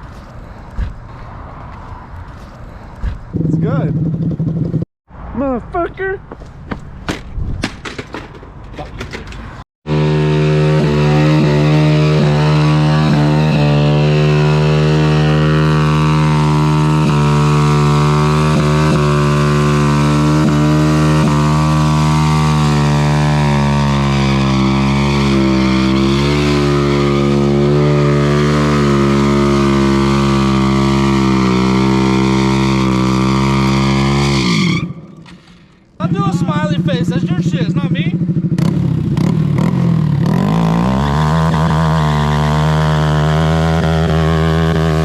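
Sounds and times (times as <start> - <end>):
motorcycle engine at high revs: 9.8 - 34.9, 36.0 - 45.0.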